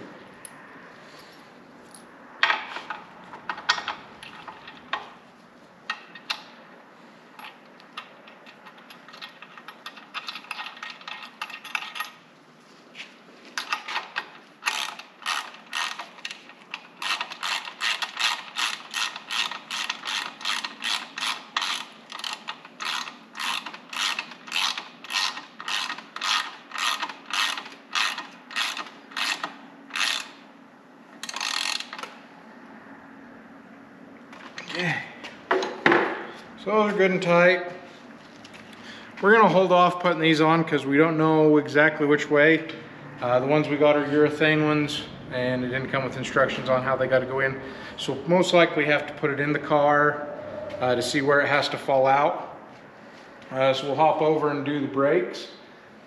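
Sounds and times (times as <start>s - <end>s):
socket ratchet clicking: 13.6s - 30.4s.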